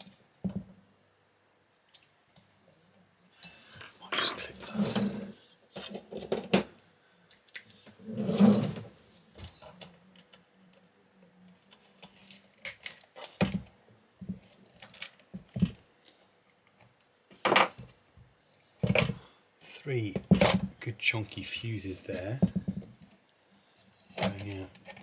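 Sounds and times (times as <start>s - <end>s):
plastic parts clicking and knocking: 18.8s - 19.2s.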